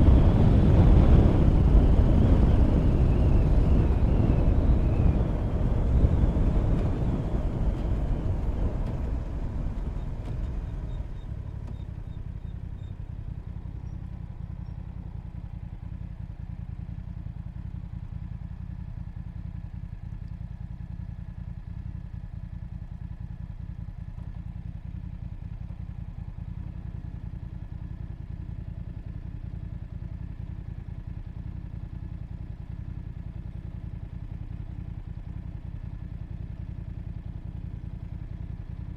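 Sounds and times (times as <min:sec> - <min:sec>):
wind noise: 0:00.0 - 0:11.1
motorcycle engine idling: 0:00.0 - 0:38.9
motorcycle slowing down: 0:00.0 - 0:38.9.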